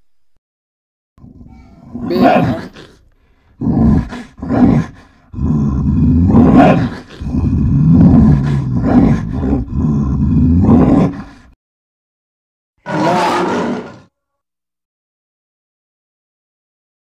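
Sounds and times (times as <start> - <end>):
bear growling and roaring: 1.2 - 11.6, 12.8 - 14.1.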